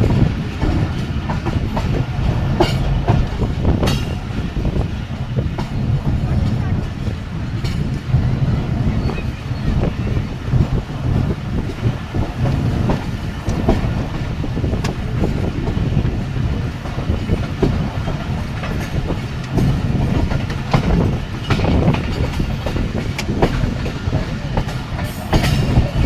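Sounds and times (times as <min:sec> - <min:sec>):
train rumbling at speed: 0:00.0 - 0:26.0
wheels clicking over rail joints: 0:00.0 - 0:26.0.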